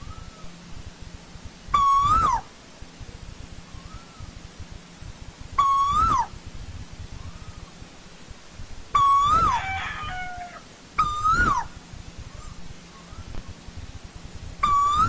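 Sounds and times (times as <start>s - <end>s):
koel calling: 1.7s - 2.5s, 5.6s - 6.4s, 9.0s - 11.8s, 14.6s - 15.0s.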